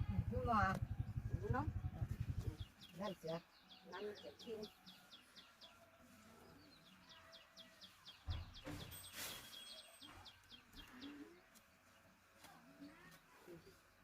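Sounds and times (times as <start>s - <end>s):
thump: 8.2s - 8.9s.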